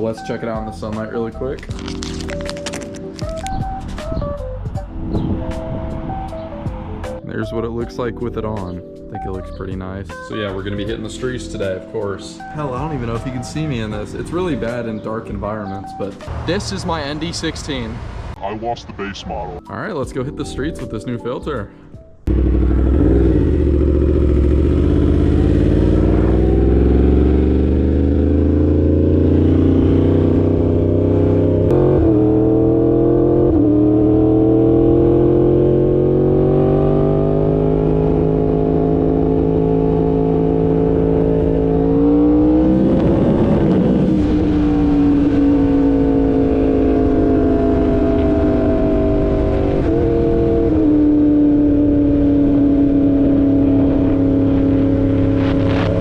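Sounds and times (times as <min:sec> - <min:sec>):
motorcycle engine revving: 0:22.3 - 0:56.0.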